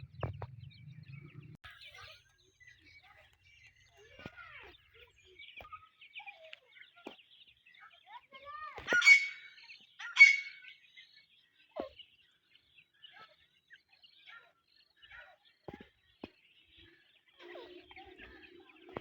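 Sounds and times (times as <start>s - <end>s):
chicks cheeping: 0.0s - 19.0s.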